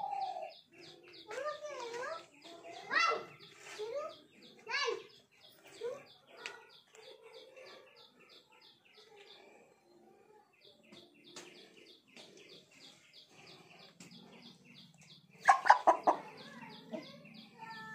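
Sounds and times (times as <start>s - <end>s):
small bird chirping: 0.0s - 17.9s
chicken squawking cluck: 15.4s - 16.3s.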